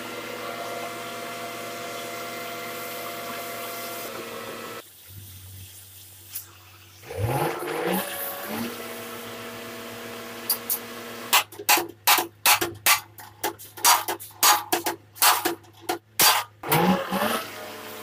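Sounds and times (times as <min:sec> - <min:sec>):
hammer beating steel panel: 0:11.4 - 0:16.5.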